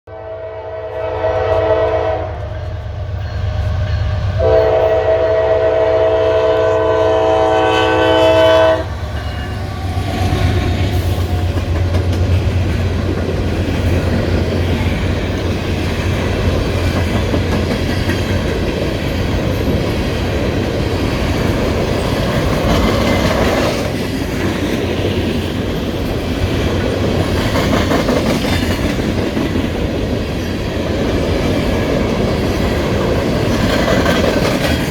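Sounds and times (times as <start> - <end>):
locomotive horn chord: 0.1 - 2.6, 3.5 - 9.0
locomotive engine rumble: 8.6 - 17.8
wheels clattering on rails: 9.1 - 34.9.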